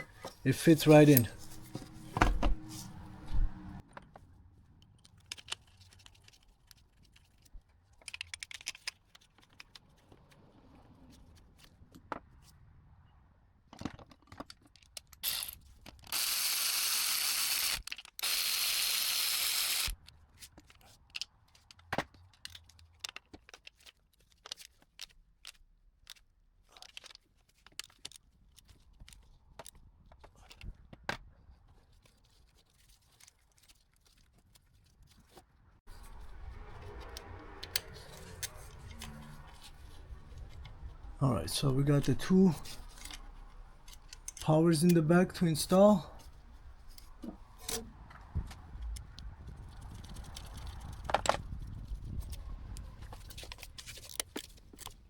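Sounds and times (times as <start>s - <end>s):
power tool running: 16.1s - 19.9s.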